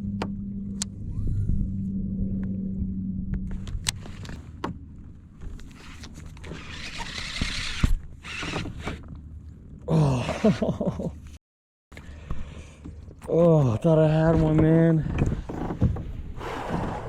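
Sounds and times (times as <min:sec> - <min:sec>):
steady hum: 0:00.0 - 0:05.4.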